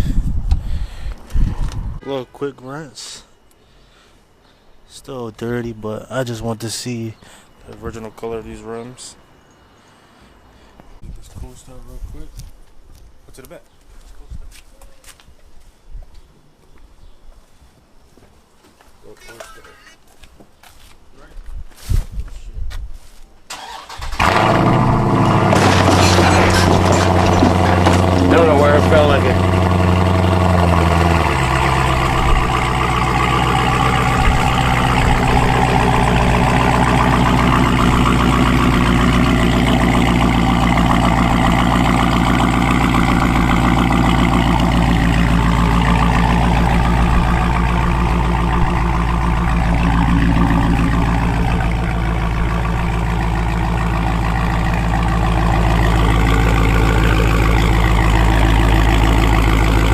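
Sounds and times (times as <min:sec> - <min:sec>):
car engine idling: 0:23.6 - 0:59.9.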